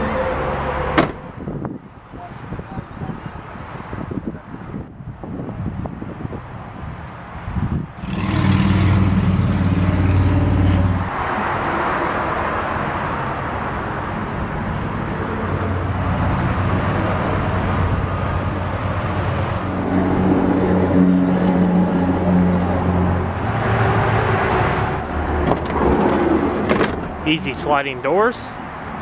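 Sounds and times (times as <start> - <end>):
vehicle engine humming: 5.8 - 29.0.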